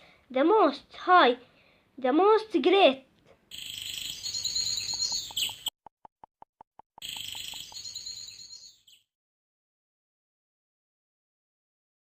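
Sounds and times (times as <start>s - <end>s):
birds chirping: 3.5s - 5.8s, 7.0s - 9.0s
quick ticks: 4.8s - 7.9s.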